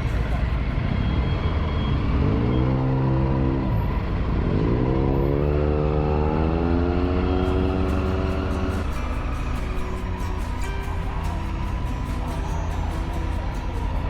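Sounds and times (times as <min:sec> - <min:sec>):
motorcycle engine accelerating: 0:01.0 - 0:11.8.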